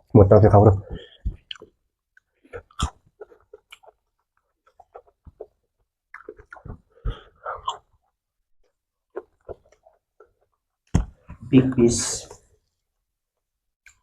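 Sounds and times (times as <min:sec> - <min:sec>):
crunchy chewing: 0:01.4 - 0:10.6.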